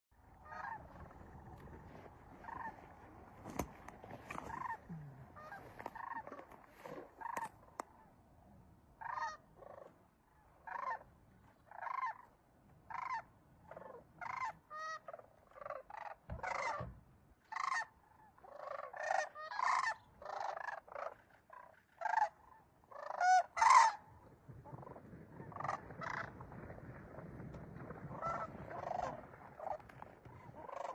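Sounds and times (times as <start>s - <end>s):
birds calling: 0.3s - 8.0s, 9.0s - 24.0s.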